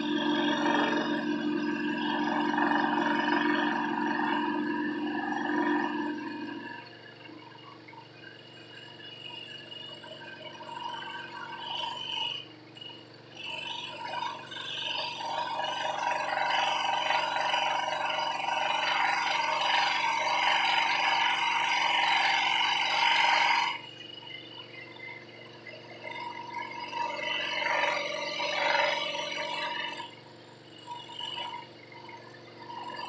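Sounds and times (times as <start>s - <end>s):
saw motor hum: 0.0s - 7.0s, 13.4s - 24.5s, 25.3s - 30.3s.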